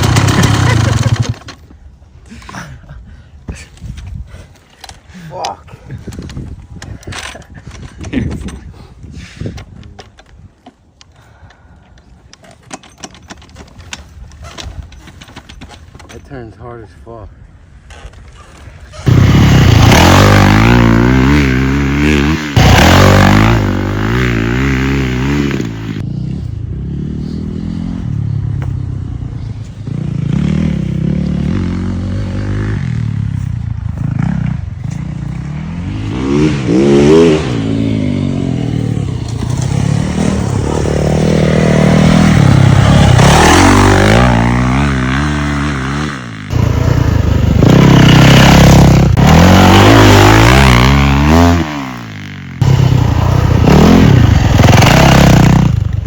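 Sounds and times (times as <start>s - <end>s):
dirt bike engine revving: 0.0s - 1.5s, 18.9s - 56.0s.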